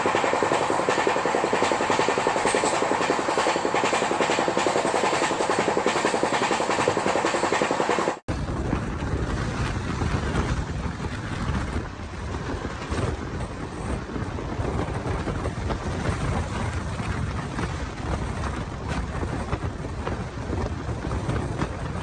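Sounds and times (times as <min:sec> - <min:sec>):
train running rumble: 0:00.0 - 0:22.0
wind buffeting microphone: 0:08.3 - 0:22.0.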